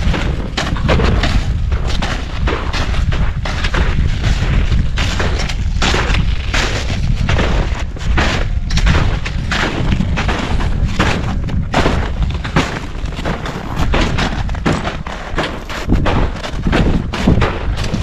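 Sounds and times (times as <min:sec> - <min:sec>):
gusty wind buffeting microphone: 0:00.0 - 0:18.0.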